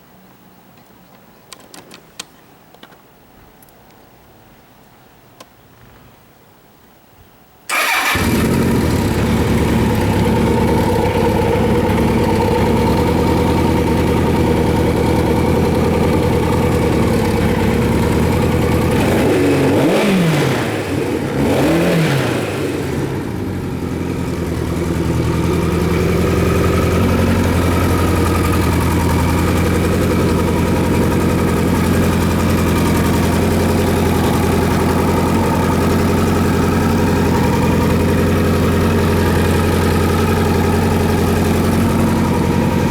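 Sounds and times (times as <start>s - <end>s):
motorcycle engine idling: 7.7s - 42.9s.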